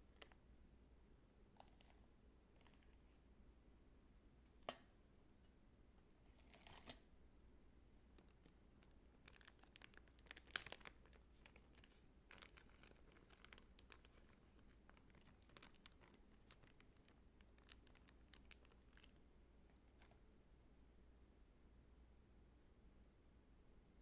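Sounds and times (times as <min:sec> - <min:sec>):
crinkling and clicks of handling: 0:00.0 - 0:00.4, 0:01.6 - 0:02.0, 0:02.6 - 0:03.1, 0:06.4 - 0:07.1, 0:08.1 - 0:20.3.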